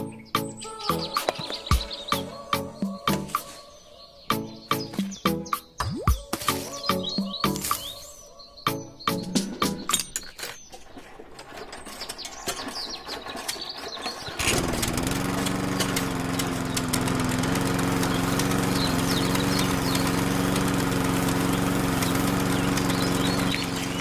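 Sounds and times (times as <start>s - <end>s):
small motor humming: 13.5s - 24.0s.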